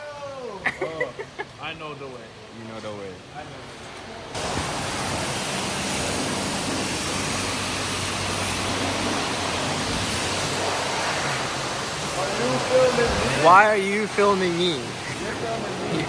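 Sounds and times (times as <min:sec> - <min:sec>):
pressure washer spraying water: 0:04.4 - 0:16.0.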